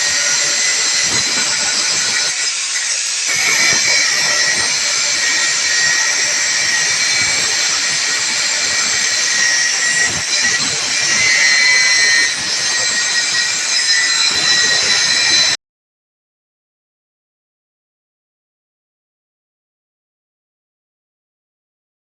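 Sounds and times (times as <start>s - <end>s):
electric motor whirring: 0.0s - 15.6s.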